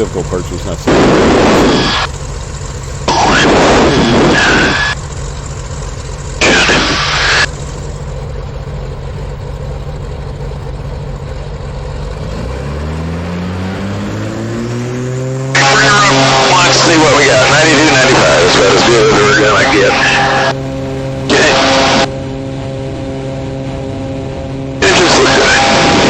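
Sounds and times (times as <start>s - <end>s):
twin piston aircraft engines: 0.0s - 26.0s
loud bursts of broad noise: 0.8s - 2.1s, 3.0s - 5.1s, 6.2s - 7.7s, 15.5s - 22.2s.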